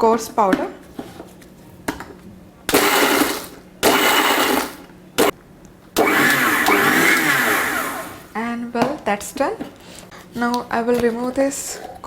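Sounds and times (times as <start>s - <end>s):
electric blender grinding: 2.7s - 5.3s, 6.0s - 8.3s.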